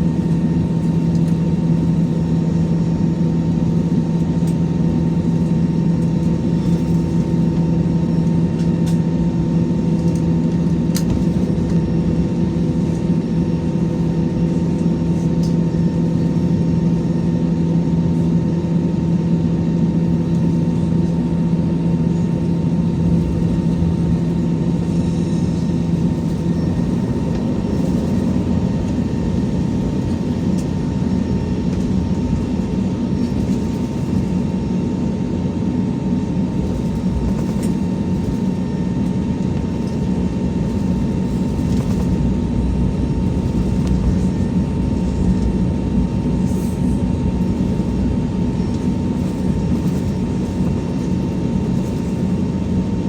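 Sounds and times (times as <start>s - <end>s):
aircraft cabin engine hum: 0.0s - 53.0s
faint steady whine: 36.4s - 53.0s.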